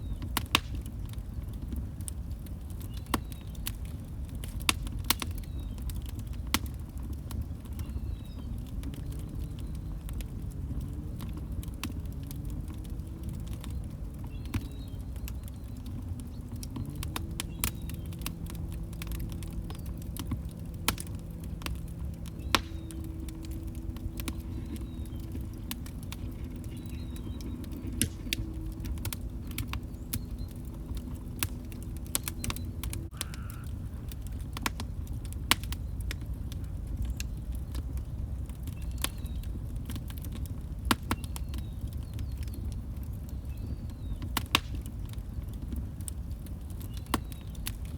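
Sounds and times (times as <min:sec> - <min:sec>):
log fire crackling: 0:00.0 - 0:47.9
faint low wavering hum: 0:07.4 - 0:38.9.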